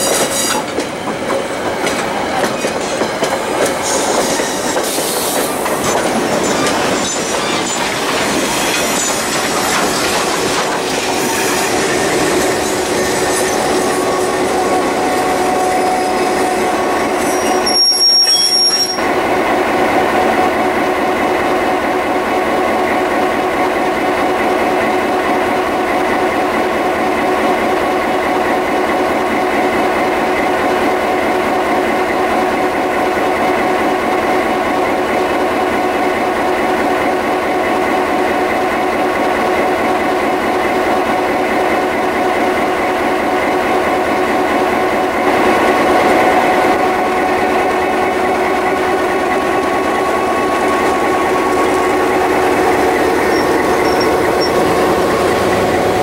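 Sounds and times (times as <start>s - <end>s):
train wheels squealing and clacking: 0.0s - 19.1s, 48.1s - 56.0s.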